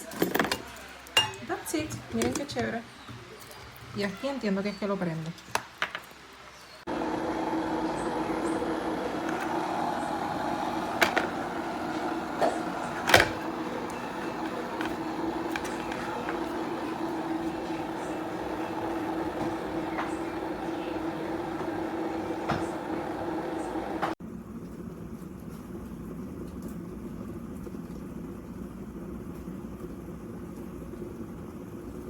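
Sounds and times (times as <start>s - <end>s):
electric kettle hum and hiss: 6.9s - 32.0s.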